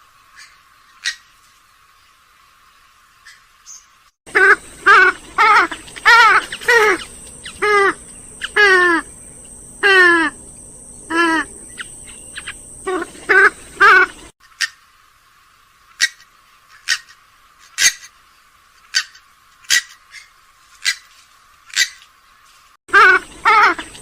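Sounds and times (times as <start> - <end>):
swamphen calling: 3.2 - 14.9, 18.9 - 22.1, 22.9 - 24.0.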